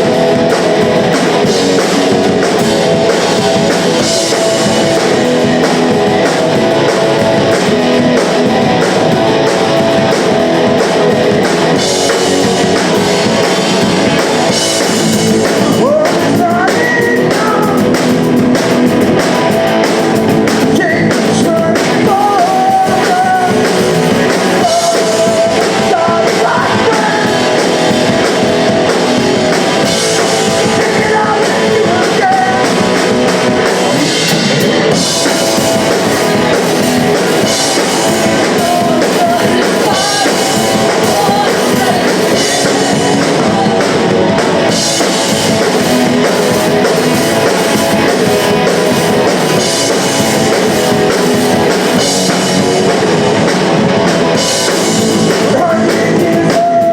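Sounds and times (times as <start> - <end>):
electric guitar: 0.0 - 56.9
punk rock band playing live: 0.0 - 56.9
person singing: 10.0 - 18.2, 20.5 - 52.6, 54.0 - 56.9.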